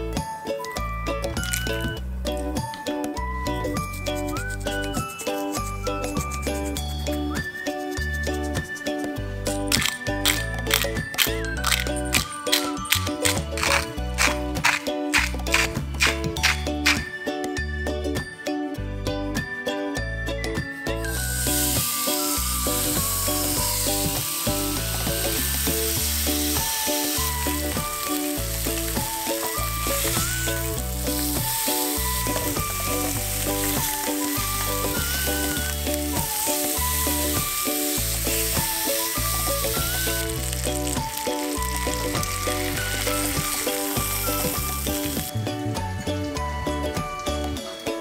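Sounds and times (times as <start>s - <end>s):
background music: 0.0s - 48.0s
fish sizzling in grill pan: 21.1s - 45.3s.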